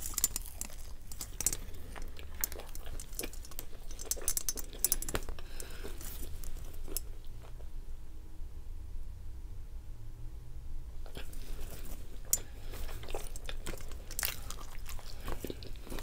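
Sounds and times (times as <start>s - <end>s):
person chewing food: 0.0s - 7.6s, 11.0s - 16.0s.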